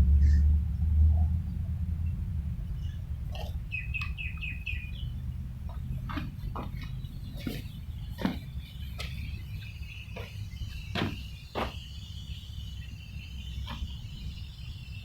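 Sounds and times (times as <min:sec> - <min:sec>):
low rumble: 0:00.0 - 0:11.5
high insect chirring: 0:07.7 - 0:15.0
sharp knocks and clicks: 0:10.2 - 0:11.8.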